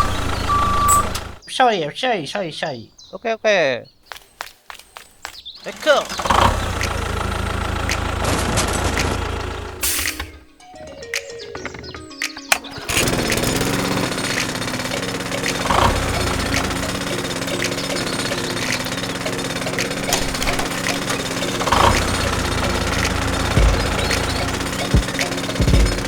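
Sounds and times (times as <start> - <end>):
small electric motor buzzing: 12.8 - 26.0
low thumps: 19.5 - 26.0.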